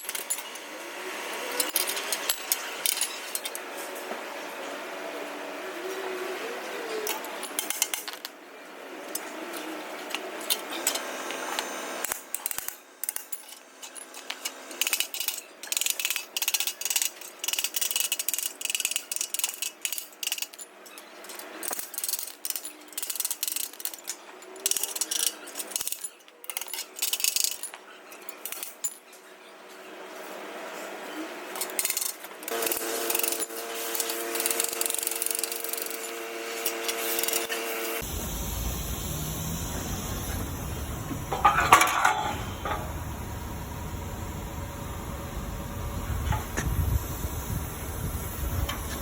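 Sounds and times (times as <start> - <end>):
hand tools tapping metal: 40.1 - 43.0.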